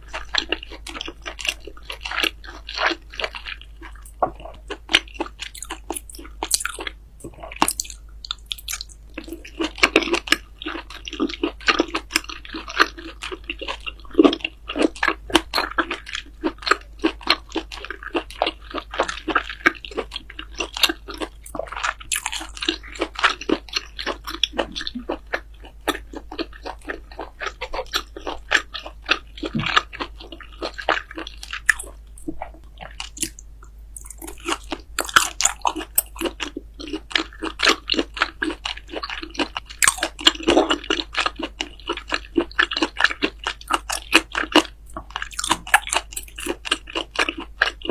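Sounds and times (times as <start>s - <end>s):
crunchy chewing of food: 0.0s - 47.9s.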